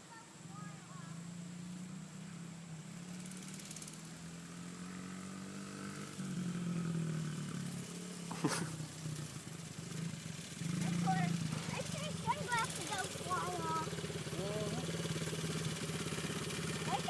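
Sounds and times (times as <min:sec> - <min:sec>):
mini bike engine running: 0:00.0 - 0:17.0.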